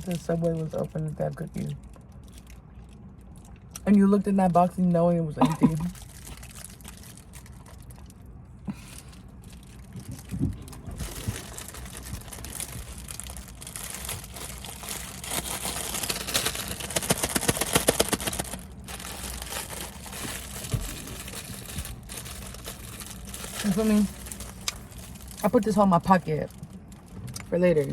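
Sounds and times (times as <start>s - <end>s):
plastic wrapper crinkling: 0.0s - 3.8s, 5.6s - 8.3s, 9.0s - 27.9s.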